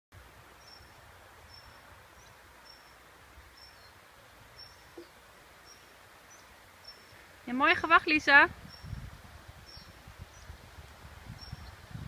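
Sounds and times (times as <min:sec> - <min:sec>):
wind rumble on microphone: 0:07.5 - 0:12.0.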